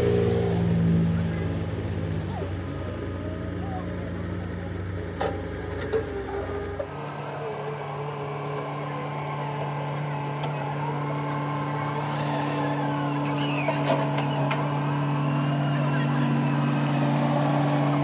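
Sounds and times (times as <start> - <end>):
motor humming: 0.0 - 18.0.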